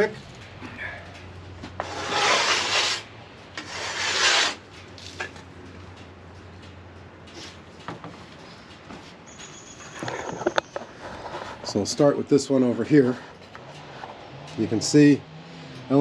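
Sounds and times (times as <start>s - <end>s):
rough rubbing against wood: 1.8s - 4.6s.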